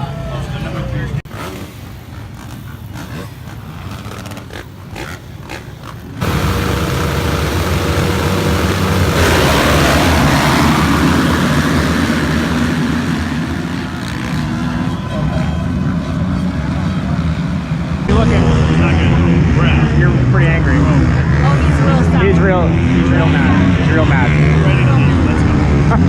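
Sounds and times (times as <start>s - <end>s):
motocross bike engines racing: 0.0s - 26.0s
broad rushing noise: 6.0s - 20.5s.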